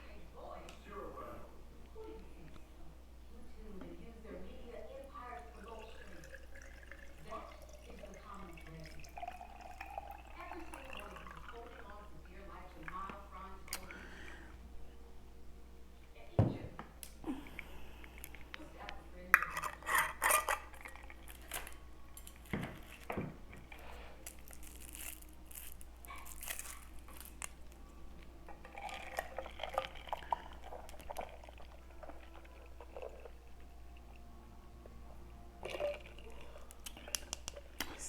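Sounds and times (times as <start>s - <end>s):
dishes and cutlery clinking: 19.3s - 23.9s.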